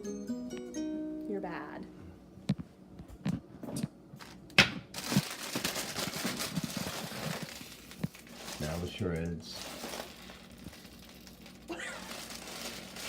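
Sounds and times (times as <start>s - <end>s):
plastic bag crinkling: 4.2s - 13.0s.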